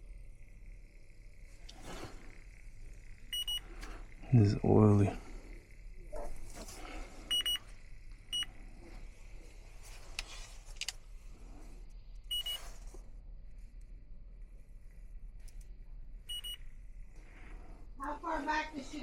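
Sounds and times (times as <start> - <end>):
short high-pitched beeps: 3.3 - 3.6, 7.3 - 7.6, 12.3 - 12.6, 16.3 - 16.6
light clicks and handling rustle: 8.7 - 11.1.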